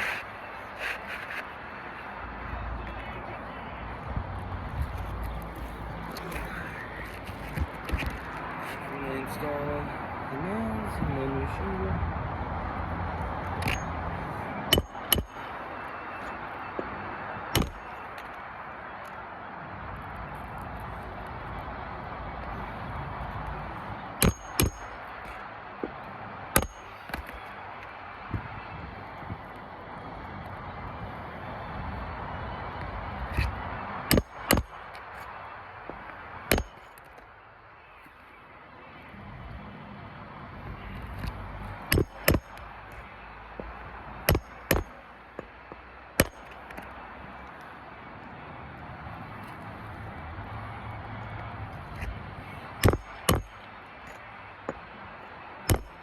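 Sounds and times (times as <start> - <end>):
hammer striking nails: 14.7 - 15.4, 17.5 - 17.9, 24.2 - 25.4, 26.5 - 27.4, 34.1 - 34.8, 36.5 - 36.9, 41.9 - 42.6, 44.2 - 45.5, 46.2 - 46.6, 52.8 - 53.6, 55.7 - 56.0.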